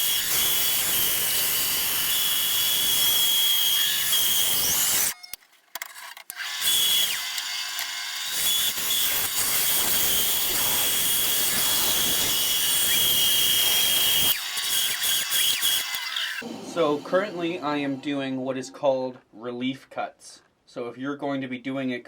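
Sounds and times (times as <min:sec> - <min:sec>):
bandsaw blade cutting wood: 0:00.0 - 0:05.2, 0:06.2 - 0:17.9
bandsaw whining: 0:00.0 - 0:05.4, 0:06.3 - 0:18.6.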